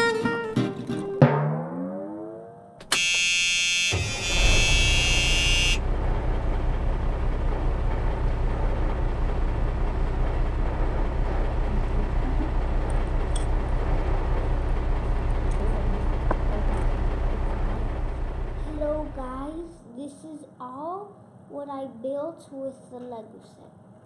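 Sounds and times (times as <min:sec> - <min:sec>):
harsh buzzing horn tone: 0:02.8 - 0:19.4
steady low rumbling: 0:05.8 - 0:19.8.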